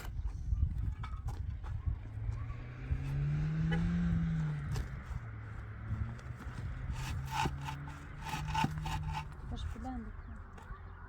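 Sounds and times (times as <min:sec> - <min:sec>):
motor engine humming: 0:06.1 - 0:10.8.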